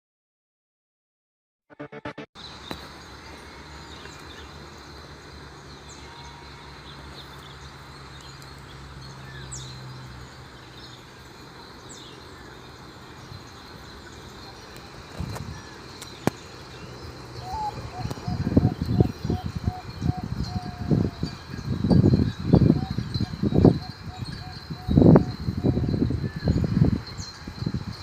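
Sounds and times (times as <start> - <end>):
brief low sound: 1.7 - 2.4.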